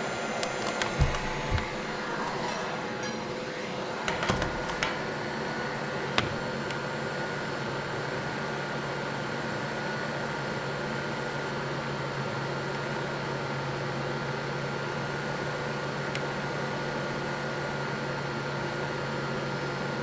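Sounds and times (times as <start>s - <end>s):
heat gun fan blowing: 0.0s - 8.1s.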